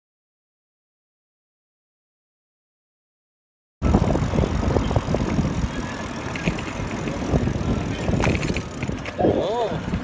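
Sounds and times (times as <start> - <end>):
wind rumble on microphone: 3.8 - 10.0
bicycle clicks and rattles: 3.9 - 10.0.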